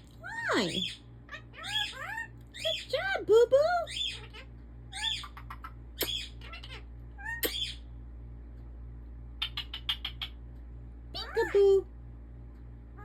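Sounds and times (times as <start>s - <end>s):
parakeet squeaky chirps: 0.2s - 3.2s, 3.8s - 7.9s, 9.4s - 10.4s
parakeet speaking: 0.2s - 7.8s, 11.1s - 11.9s
parakeet sharp clicks: 6.0s - 6.4s, 7.4s - 7.8s, 9.4s - 10.6s.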